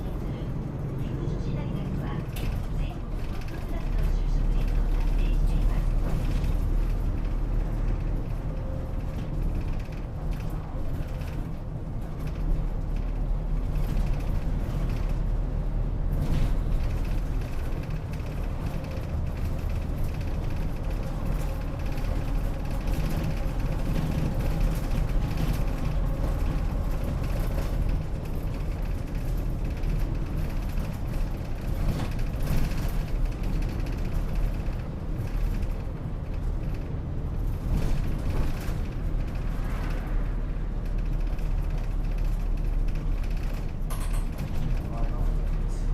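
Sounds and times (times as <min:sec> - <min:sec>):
bus engine and road noise: 0:00.0 - 0:45.9.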